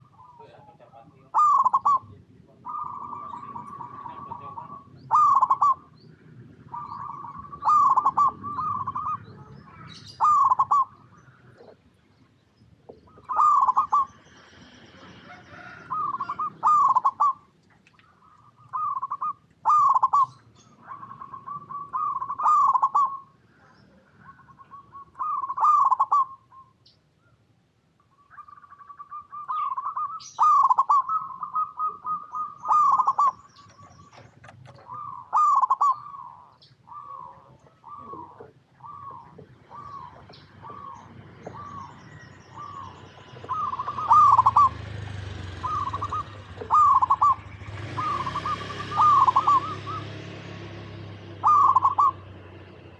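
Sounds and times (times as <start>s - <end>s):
dove cooing: 0.0s - 11.9s, 12.8s - 26.8s, 28.3s - 52.9s.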